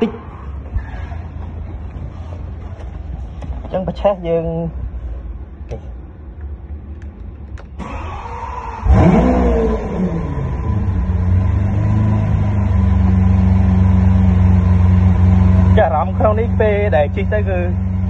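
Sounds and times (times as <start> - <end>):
car engine starting and idling: 5.0 - 18.0
starter clicks and whir: 6.9 - 11.5.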